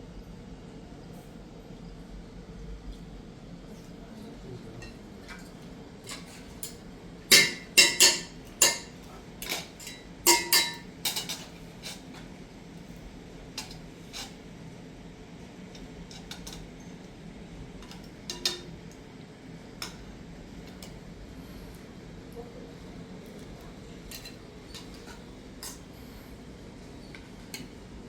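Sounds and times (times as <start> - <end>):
dishes and utensils clinking: 4.8 - 12.2, 17.8 - 18.8, 24.1 - 25.9.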